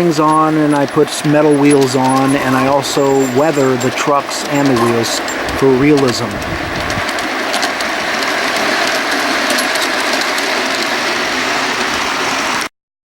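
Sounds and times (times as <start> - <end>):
model train rolling on track: 0.0 - 12.7.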